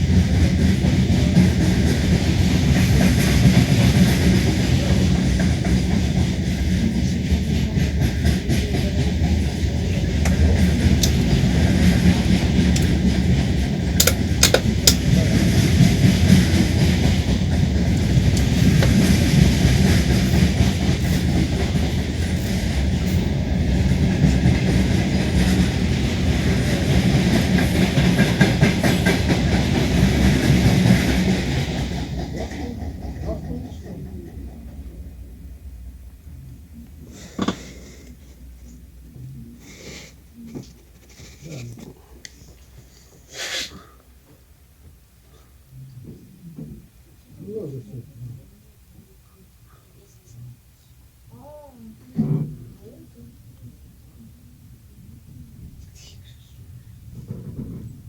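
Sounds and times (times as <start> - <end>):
train wheels clattering: 0.0 - 36.0, 57.1 - 58.0
steady train rumble: 0.0 - 58.0
sharp clicks: 14.0 - 15.0.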